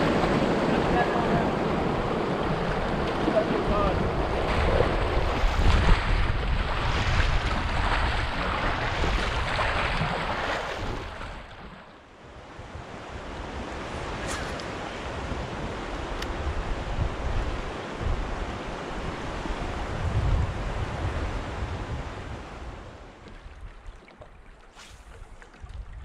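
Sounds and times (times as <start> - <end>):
river water rushing: 0.0 - 5.8
wind buffeting microphone: 0.0 - 11.6, 12.2 - 23.9, 24.8 - 26.0.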